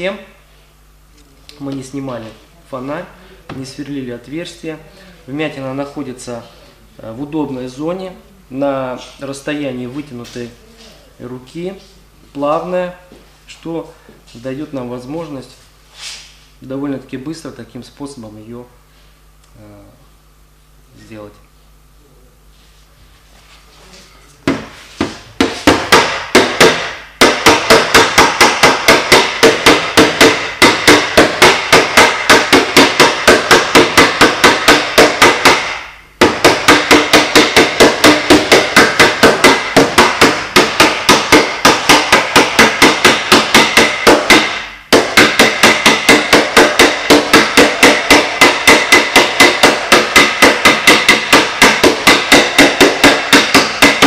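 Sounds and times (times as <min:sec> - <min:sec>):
tool tapping on car body panel: 0:24.4 - 0:54.0.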